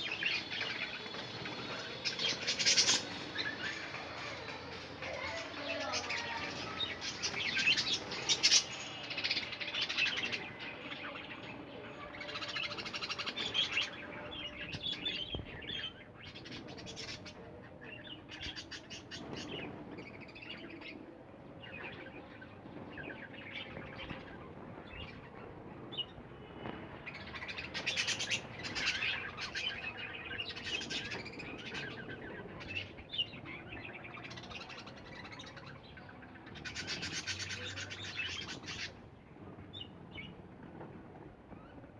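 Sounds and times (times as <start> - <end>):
budgerigars chattering and chirping: 0.0 - 10.5, 27.4 - 38.9.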